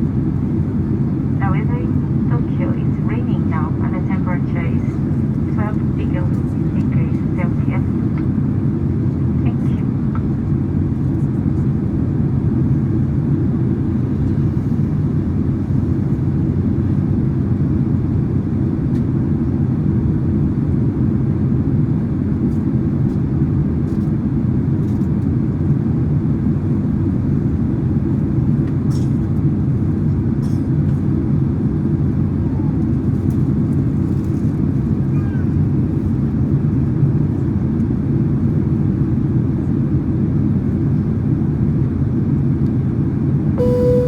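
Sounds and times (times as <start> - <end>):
airplane cabin engine rumble: 0.0 - 19.4, 43.6 - 44.0.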